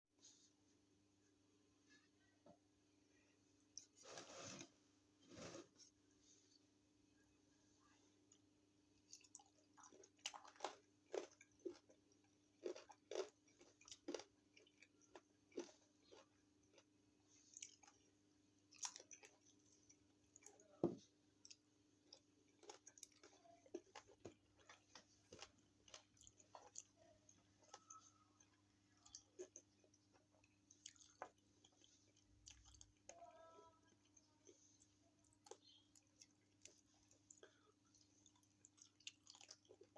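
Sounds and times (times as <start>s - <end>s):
faint electrical hum: 0.2s - 39.9s
chewing and crunching: 9.0s - 39.9s.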